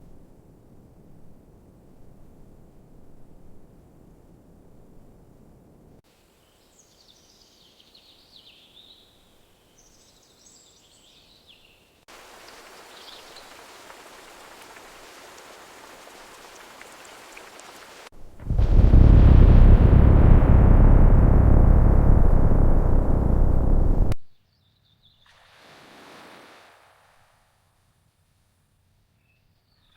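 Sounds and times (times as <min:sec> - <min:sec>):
falling water hiss: 0:12.1 - 0:24.2.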